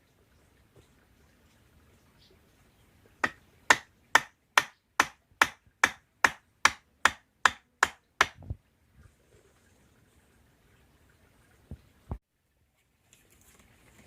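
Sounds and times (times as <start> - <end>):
sharp knocks: 3.2 - 8.6.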